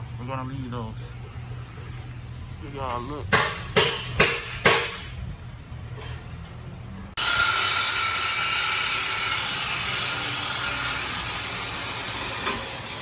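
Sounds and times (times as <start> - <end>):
power tool cutting exhaust pipe: 7.2 - 13.0.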